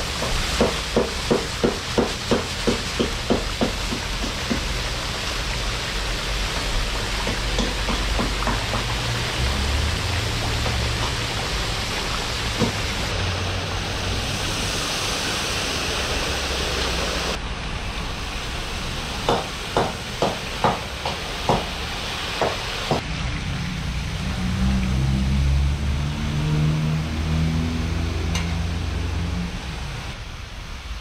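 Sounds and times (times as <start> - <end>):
carrots sizzling in oil: 0.0 - 23.4.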